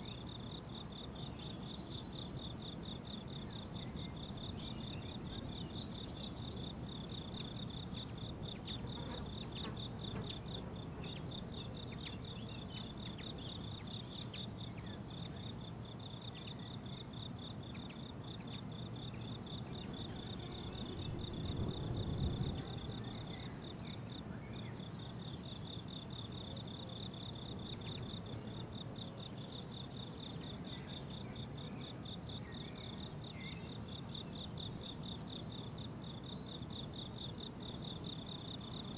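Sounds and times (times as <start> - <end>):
crickets chirping: 0.0 - 38.9
faint low rumble: 18.7 - 24.7.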